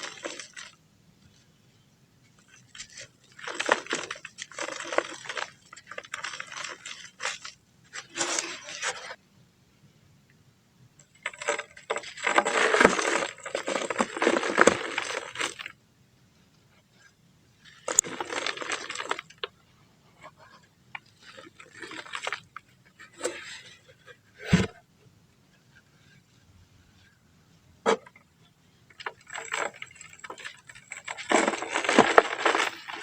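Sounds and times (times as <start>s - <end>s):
dry dirt crunching and crumbling: 0.0s - 0.8s, 2.4s - 9.1s, 11.1s - 15.8s, 17.6s - 19.6s, 21.0s - 23.8s, 27.9s - 33.0s.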